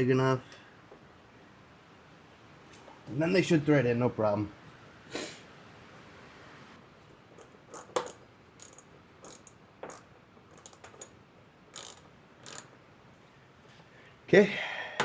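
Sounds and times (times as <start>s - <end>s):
plastic screws clicking: 7.4s - 11.1s, 11.8s - 12.7s.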